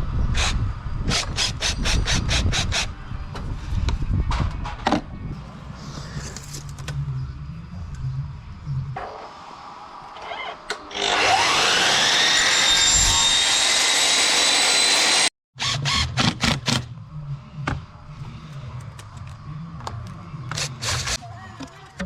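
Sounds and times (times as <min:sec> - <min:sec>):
electric chop saw motor whining: 0:10.2 - 0:16.2.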